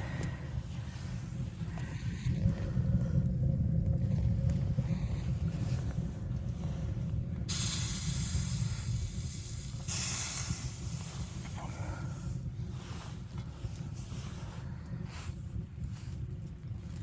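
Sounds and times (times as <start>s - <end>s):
steady low rumble: 0.0s - 17.0s
loud hiss: 7.5s - 12.4s.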